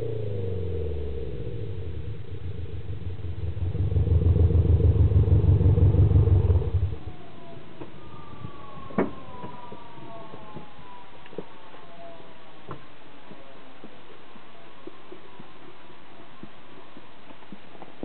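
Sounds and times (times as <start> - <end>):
car engine revving: 0.0 - 7.0
faint falling whines: 0.0 - 18.0.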